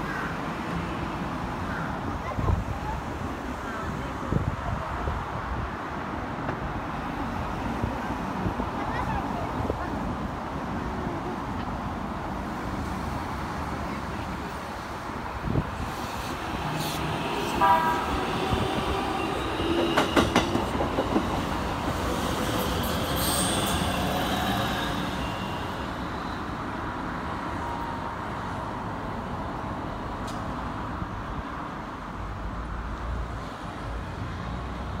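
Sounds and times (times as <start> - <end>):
electric train running past: 15.6 - 29.4
wheels clacking over rail joints: 15.9 - 25.1
high wheel squeal: 22.1 - 26.5.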